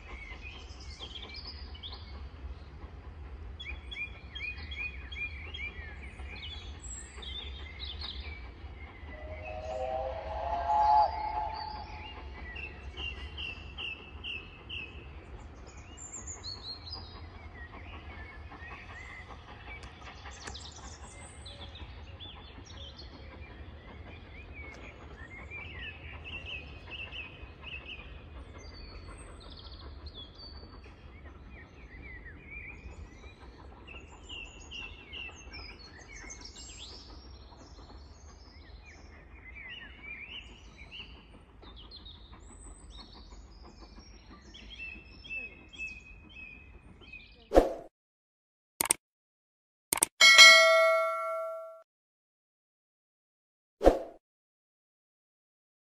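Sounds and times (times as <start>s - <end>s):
birds singing: 3.5s - 29.8s.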